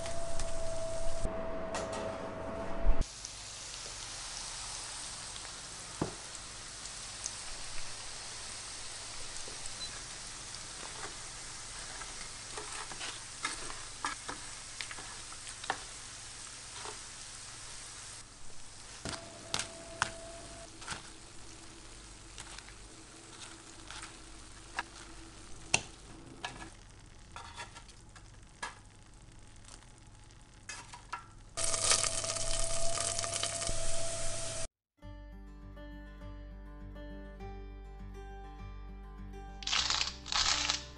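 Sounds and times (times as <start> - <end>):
potatoes sizzling in hot fat: 3.0 - 34.7, 39.6 - 40.9.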